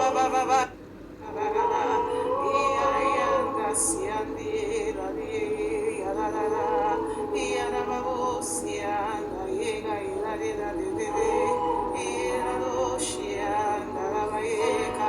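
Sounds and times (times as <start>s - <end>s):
person singing with vibrato: 0.0s - 15.0s
sustained instrumental backing: 0.0s - 15.0s.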